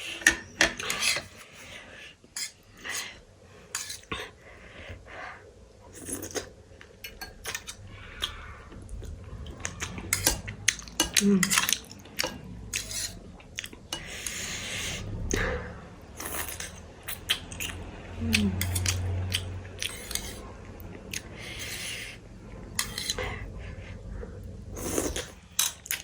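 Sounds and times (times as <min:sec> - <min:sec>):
cutlery scraping a plate: 0:00.0 - 0:01.7, 0:02.3 - 0:03.1, 0:03.7 - 0:04.2, 0:07.0 - 0:08.4, 0:09.6 - 0:15.1, 0:16.2 - 0:17.2, 0:19.8 - 0:20.4, 0:22.8 - 0:23.3.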